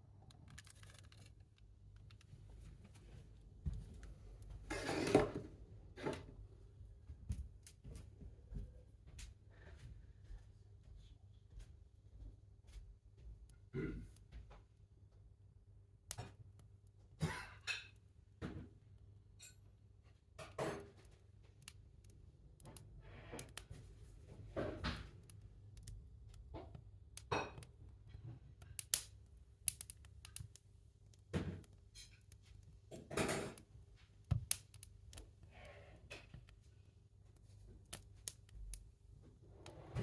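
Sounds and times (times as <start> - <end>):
short rustling scrapes: 4.6 - 5.4.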